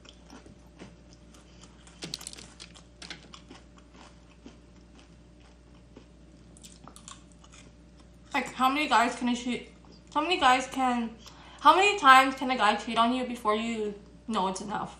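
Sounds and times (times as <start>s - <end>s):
chewing crunchy fried chicken: 0.0s - 8.4s.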